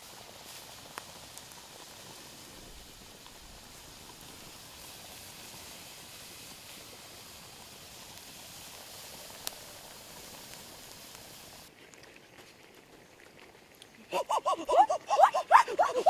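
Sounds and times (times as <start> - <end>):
steady hiss: 0.0 - 11.7.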